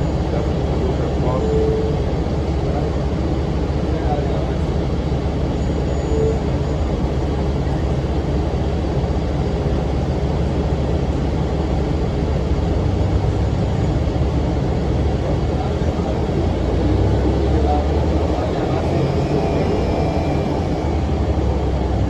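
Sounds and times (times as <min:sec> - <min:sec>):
bus diesel engine drone: 0:00.0 - 0:22.0
engine cooling fan: 0:00.0 - 0:22.0.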